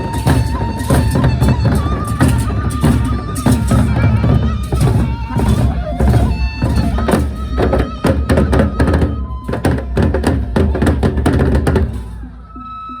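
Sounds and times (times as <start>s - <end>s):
loud procession band music: 0.0s - 13.0s.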